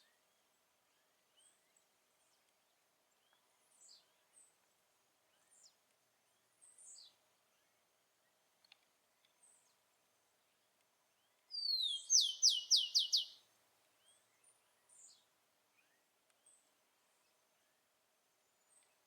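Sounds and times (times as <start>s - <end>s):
sparrow singing: 11.5s - 13.4s
faint short chirps: 11.6s - 13.4s.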